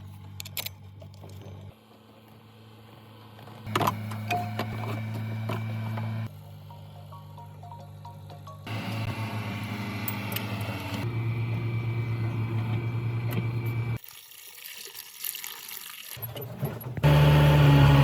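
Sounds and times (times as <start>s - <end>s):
mechanical hum: 0.0s - 14.0s
diesel truck engine running: 8.6s - 14.0s, 16.8s - 18.0s.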